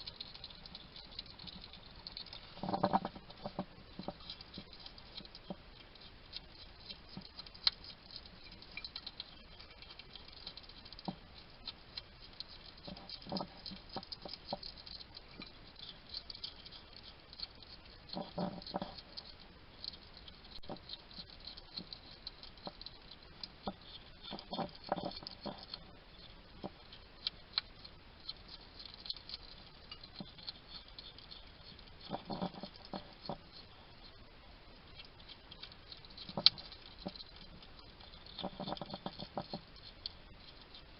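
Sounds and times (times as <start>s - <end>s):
hedgehog crunching and chewing food: 0.0s - 40.9s
hedgehog snuffling: 20.3s - 40.9s.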